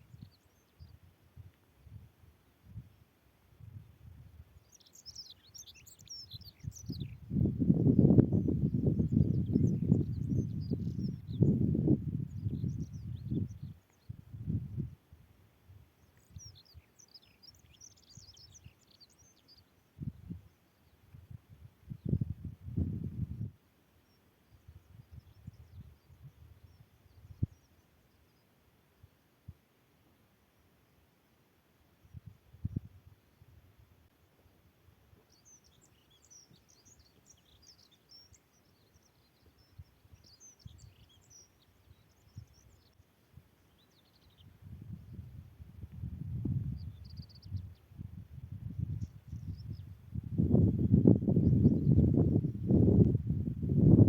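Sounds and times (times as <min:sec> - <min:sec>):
small birds chirping: 0:00.0 - 0:02.0, 0:03.6 - 0:15.0, 0:15.9 - 0:29.3, 0:32.0 - 0:54.0
small bird twittering: 0:04.6 - 0:07.2
wind buffeting microphone: 0:06.4 - 0:15.0, 0:20.0 - 0:20.5, 0:21.2 - 0:23.5, 0:44.3 - 0:54.0.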